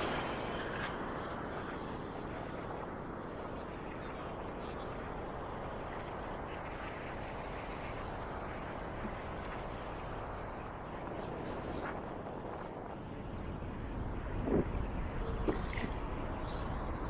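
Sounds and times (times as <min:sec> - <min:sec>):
city street traffic: 0:00.0 - 0:17.0
faint high squeaks and ticks: 0:10.8 - 0:17.0.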